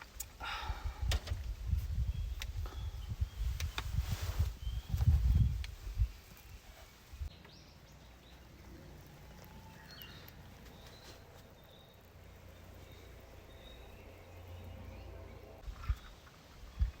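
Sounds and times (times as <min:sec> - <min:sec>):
faint outdoor ambience: 0:00.0 - 0:17.0.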